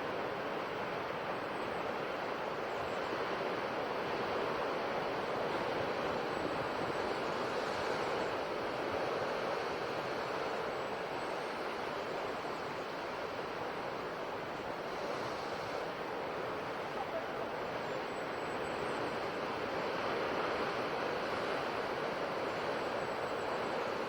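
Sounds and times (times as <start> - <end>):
sea waves washing on shore: 2.1 - 24.0.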